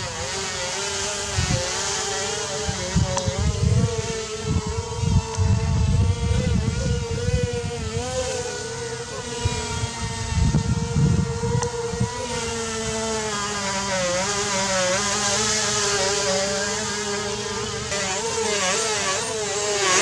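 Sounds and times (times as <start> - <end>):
rc plane motors whining: 0.0 - 20.0
wind buffeting microphone: 2.5 - 13.6.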